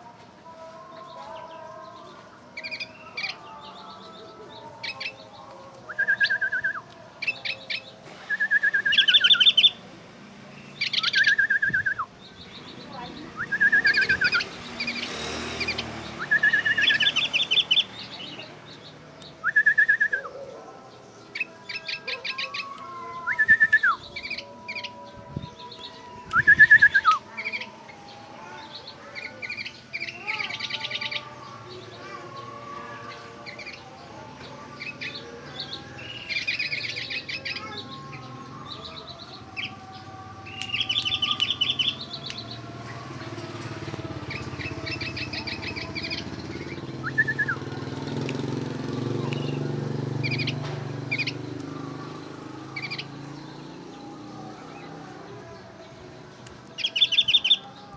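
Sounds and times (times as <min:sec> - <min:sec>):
bird whistled notes: 0:08.3 - 0:09.8, 0:16.2 - 0:17.9, 0:23.2 - 0:24.4, 0:26.3 - 0:27.2, 0:47.0 - 0:47.7
bird chattering trills: 0:40.5 - 0:42.0.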